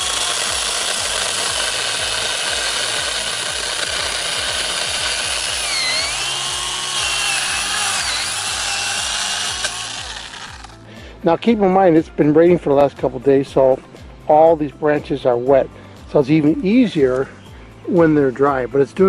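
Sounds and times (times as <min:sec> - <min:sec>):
chainsaw cutting wood: 0:00.0 - 0:10.9.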